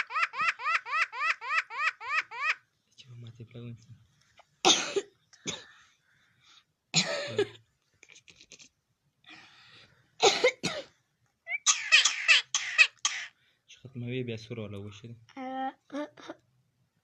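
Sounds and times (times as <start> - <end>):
loud hoarse coughs: 4.6 - 5.7, 7.0 - 7.6, 10.2 - 10.9, 11.7 - 13.3.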